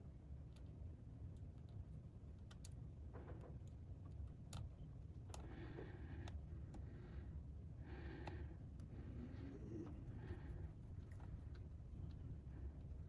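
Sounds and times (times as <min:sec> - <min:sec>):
low steady hum: 0:04.0 - 0:13.0.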